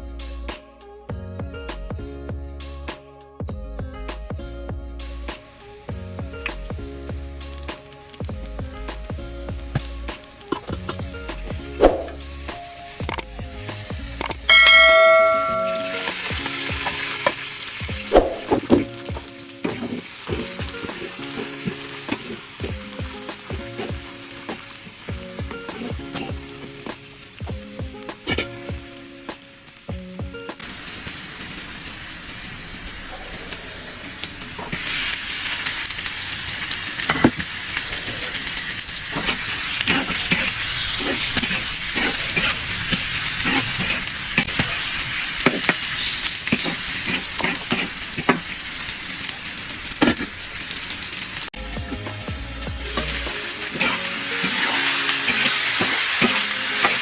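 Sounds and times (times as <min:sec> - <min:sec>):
curry sizzling in a pan: 0:05.1 - 0:57.0
spoon scraping a pan: 0:14.5 - 0:17.5, 0:19.6 - 0:22.7, 0:25.6 - 0:26.8, 0:37.0 - 0:37.5, 0:38.2 - 0:48.6, 0:50.0 - 0:50.4, 0:53.0 - 0:57.0.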